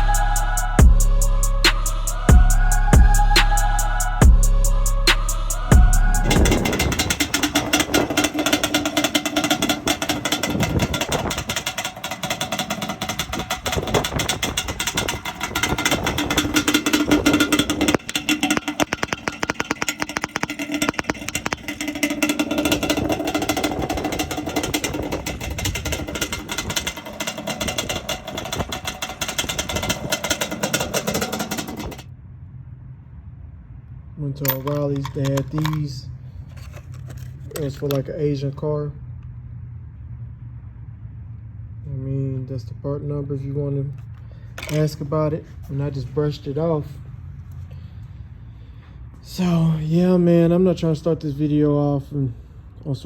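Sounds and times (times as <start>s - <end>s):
atv engine running hard: 0.0s - 32.0s
wind noise: 6.2s - 8.7s.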